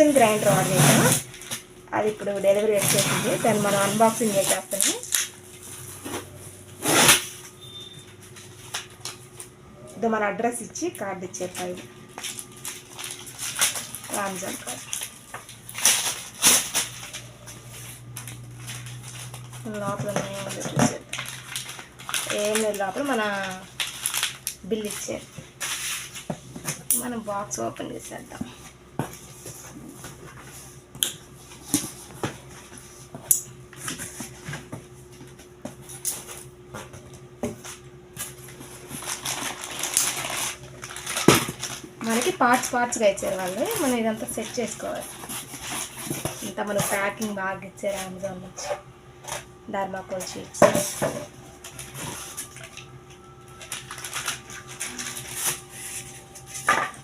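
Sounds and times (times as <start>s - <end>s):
packaging rustling: 11.5s - 26.8s, 37.6s - 47.2s, 50.1s - 57.0s.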